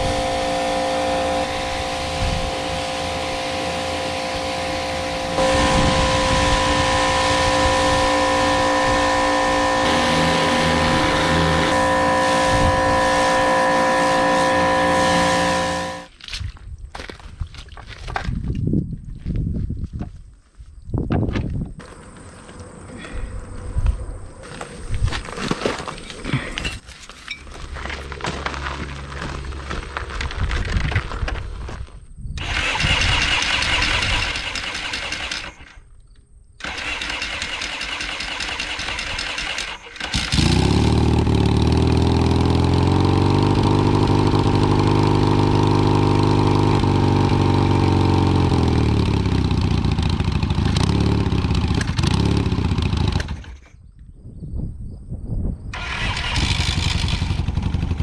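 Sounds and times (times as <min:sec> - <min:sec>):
motorcycle engine running: 0:00.0 - 0:16.1, 0:32.4 - 0:35.6, 0:36.6 - 0:53.6, 0:55.8 - 0:58.0.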